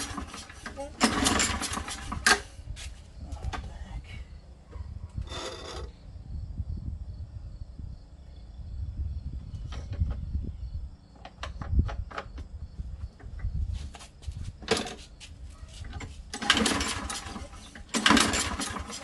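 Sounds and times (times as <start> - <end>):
lawn mower engine running unevenly: 0.0 - 2.6, 5.2 - 5.9, 15.7 - 19.0.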